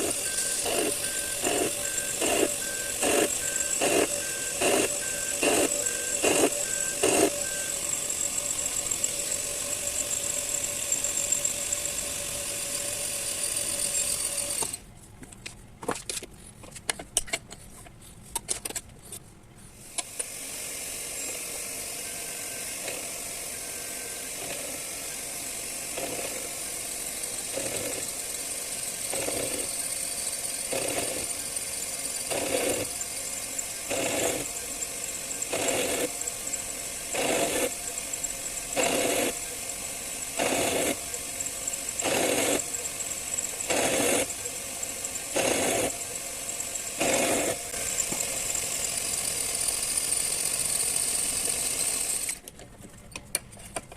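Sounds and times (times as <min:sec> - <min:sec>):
metal lathe running: 0:00.0 - 0:14.8, 0:20.1 - 0:52.4.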